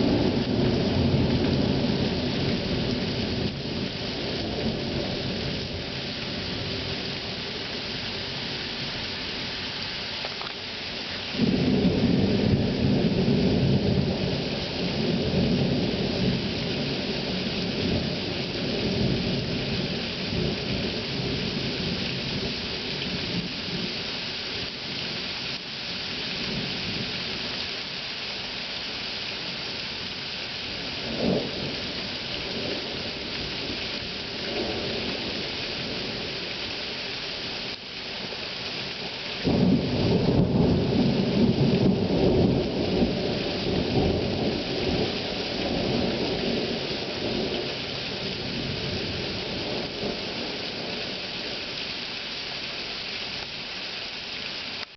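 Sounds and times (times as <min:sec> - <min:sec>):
heavy rain hissing: 0:00.0 - 0:54.9
thunder rumbling: 0:11.3 - 0:23.9, 0:39.4 - 0:51.6.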